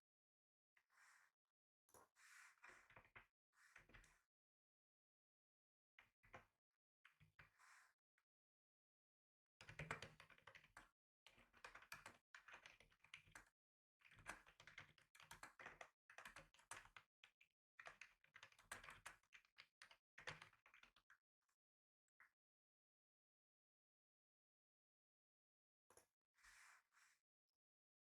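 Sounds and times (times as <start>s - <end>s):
typing on computer keyboard: 9.6s - 17.1s.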